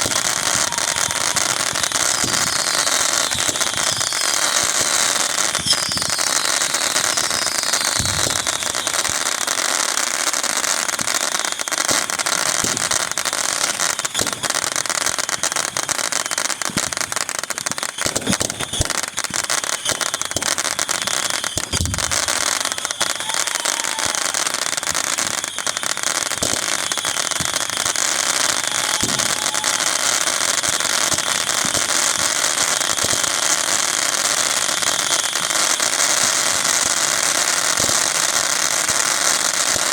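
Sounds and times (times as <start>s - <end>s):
deep firework booms: 0.0s - 9.0s, 21.7s - 22.4s
fireworks crackling: 0.0s - 39.9s.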